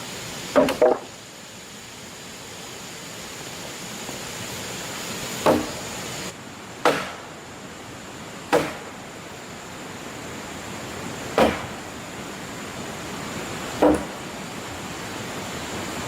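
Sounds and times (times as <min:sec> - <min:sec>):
steady background hiss: 0:00.0 - 0:16.0
tool striking wood: 0:00.5 - 0:01.1, 0:05.4 - 0:05.8, 0:06.8 - 0:07.3, 0:08.5 - 0:08.9, 0:11.3 - 0:11.8, 0:13.8 - 0:14.2.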